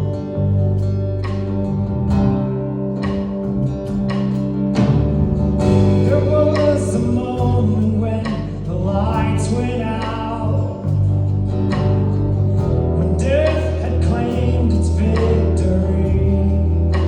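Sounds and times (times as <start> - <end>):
held low notes: 0.0 - 17.0
strummed guitar: 0.0 - 17.0
man singing: 6.0 - 11.1, 13.0 - 17.0.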